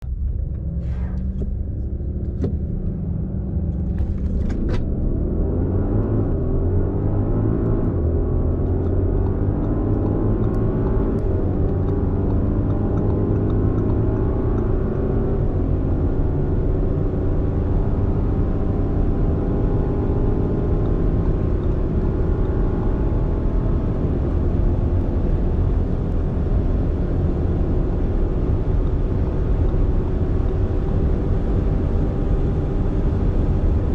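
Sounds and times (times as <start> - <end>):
engine accelerating through gear shifts: 0.0 - 33.9
engine idling with clicks: 7.6 - 15.6, 27.8 - 30.9.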